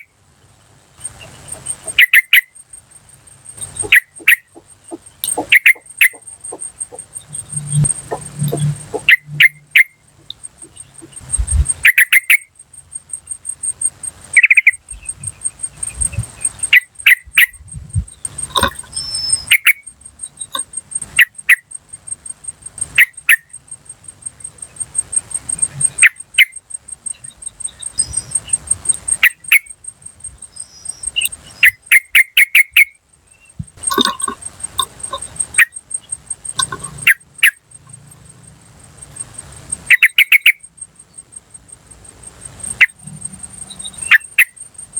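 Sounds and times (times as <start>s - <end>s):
insect trilling: 0.0s - 44.9s
bird calling sharp cuk notes: 3.6s - 11.2s.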